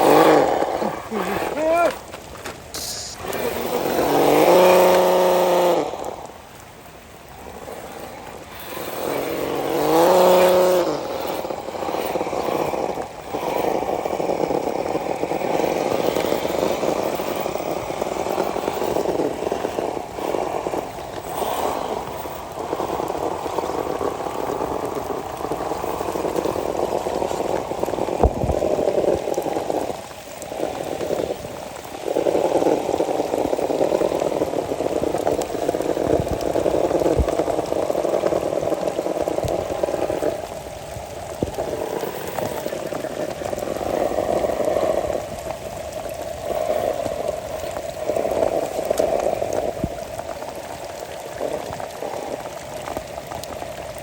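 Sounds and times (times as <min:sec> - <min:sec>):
rc car motor whirring: 0:00.0 - 0:05.9, 0:07.7 - 0:24.5
drawn-out vocal calls: 0:00.0 - 0:24.5.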